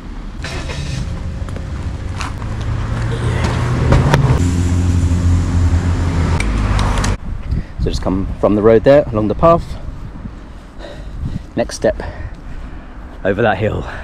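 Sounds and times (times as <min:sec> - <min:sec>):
car driving by: 0:00.4 - 0:07.2.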